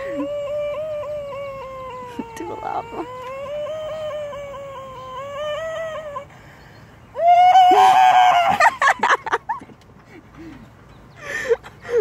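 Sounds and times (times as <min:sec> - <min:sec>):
boy making vocal noises: 0:00.0 - 0:06.3.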